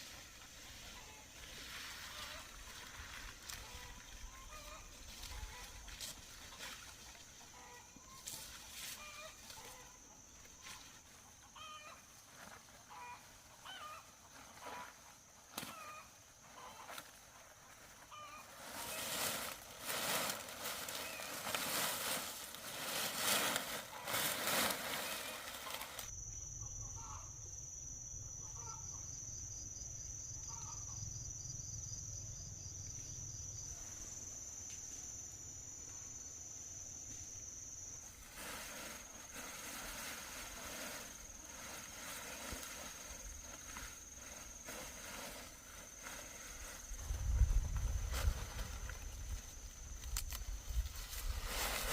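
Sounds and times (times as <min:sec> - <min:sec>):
loud rustling: 0:18.6 - 0:26.1.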